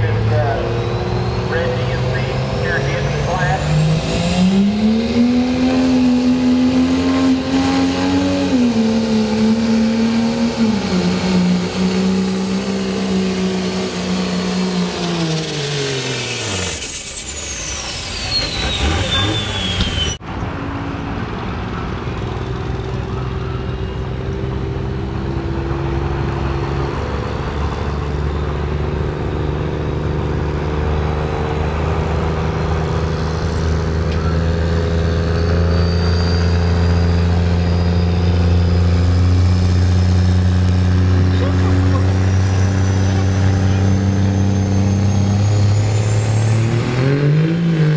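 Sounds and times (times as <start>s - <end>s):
turbocharger whistle: 0.0s - 20.2s, 33.1s - 47.9s
diesel truck engine revving: 0.0s - 47.9s.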